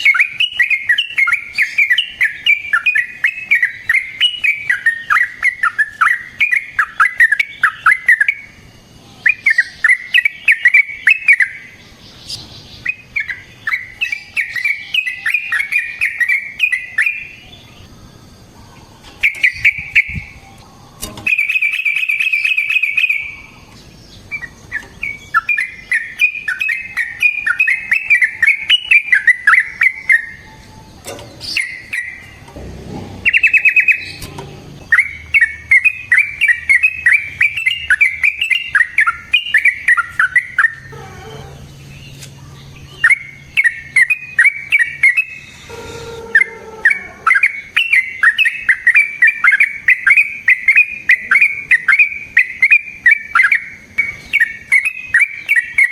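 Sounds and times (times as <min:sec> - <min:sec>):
bulbul singing bubbling phrases: 0:50.6 - 0:52.6.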